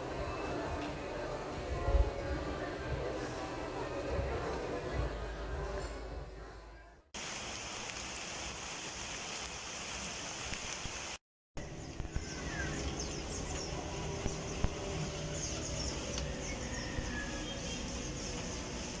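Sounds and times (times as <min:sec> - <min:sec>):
steady outdoor hiss: 0:07.2 - 0:19.0
high bird chirps: 0:11.6 - 0:18.9.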